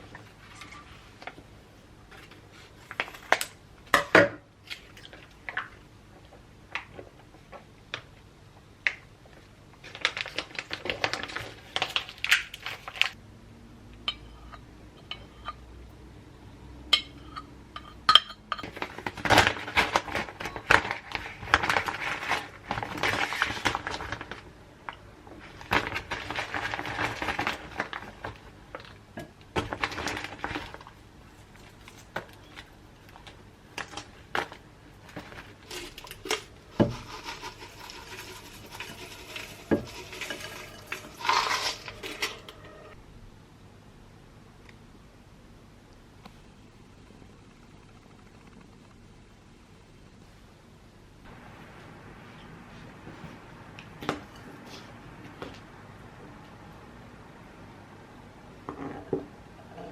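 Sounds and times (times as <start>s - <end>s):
dishes scraping: 36.8s - 43.0s.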